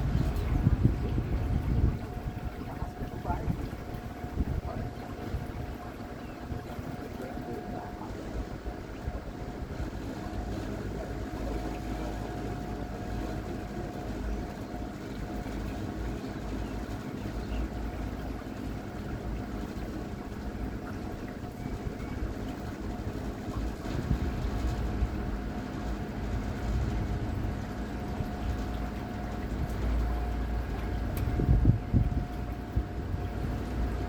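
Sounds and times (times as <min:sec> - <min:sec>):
wind noise: 0:00.0 - 0:08.2, 0:31.1 - 0:34.0
rushing water: 0:00.0 - 0:34.0.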